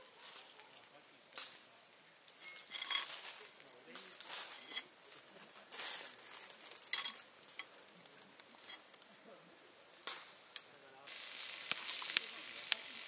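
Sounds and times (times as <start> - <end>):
light metal clinks: 2.4 - 3.6
food sizzling in a pan: 2.6 - 13.0.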